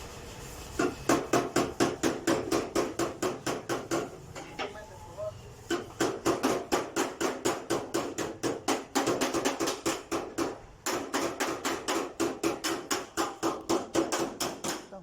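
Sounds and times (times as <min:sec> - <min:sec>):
hammer striking quickly: 0:05.7 - 0:14.9.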